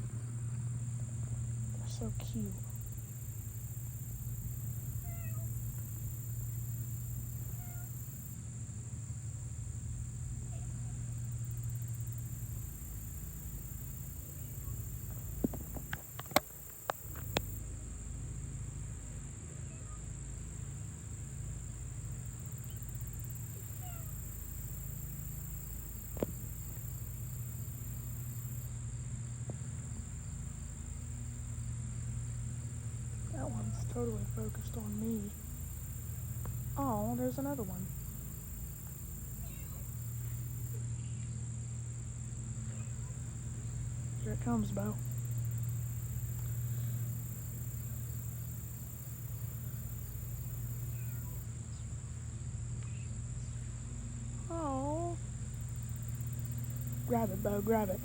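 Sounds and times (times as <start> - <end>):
kittens mewing: 5.0 - 5.5, 7.5 - 8.0, 23.6 - 24.2.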